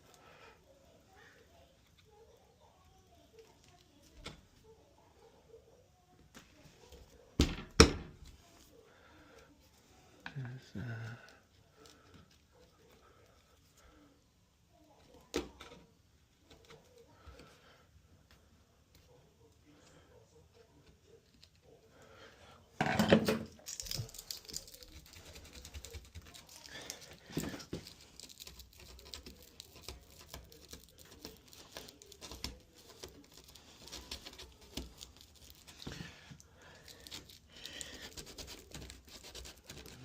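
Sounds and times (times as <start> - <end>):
rustling and crinkling: 23.0 - 40.0.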